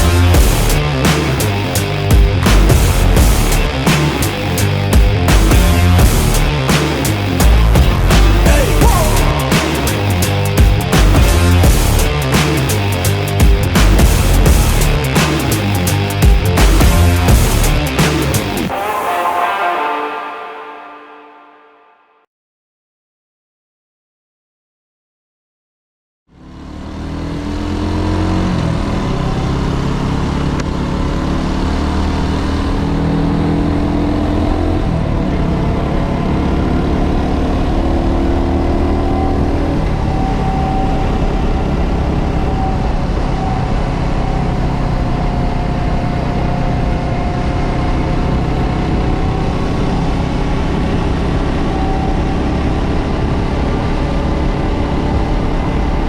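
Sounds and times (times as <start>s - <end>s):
motorcycle engine running: 0.0s - 18.7s, 26.4s - 34.0s.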